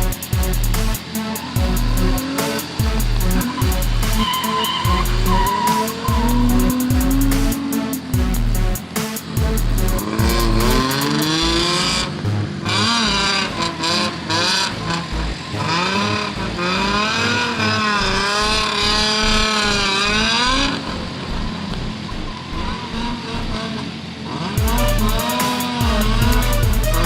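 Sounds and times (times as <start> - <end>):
music with steady beat: 0.0 - 17.4, 24.6 - 27.0
car engine revving: 0.0 - 27.0.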